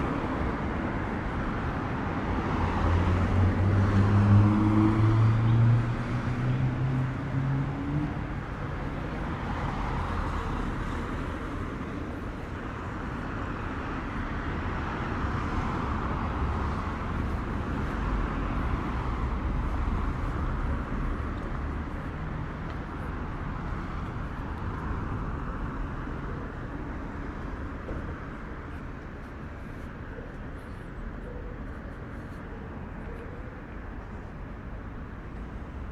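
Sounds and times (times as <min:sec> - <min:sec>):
cars driving past: 0:00.0 - 0:12.1.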